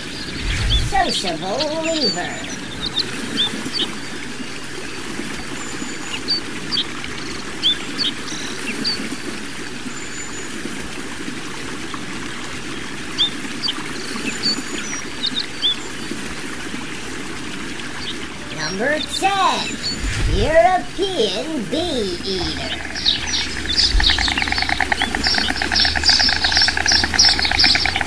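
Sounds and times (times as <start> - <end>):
steady rushing noise: 0.0 - 1.4, 19.6 - 21.4
small birds chirping: 0.0 - 4.2, 17.9 - 28.0.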